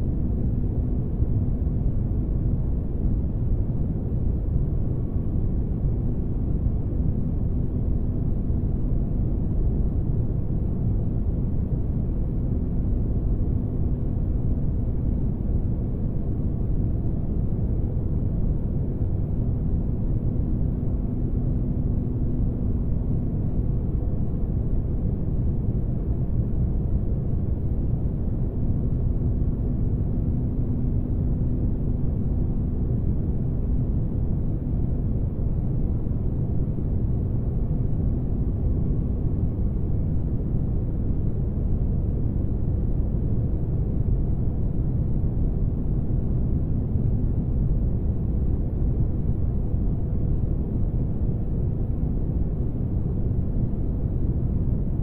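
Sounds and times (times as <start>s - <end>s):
faint hum: 0.0s - 55.0s.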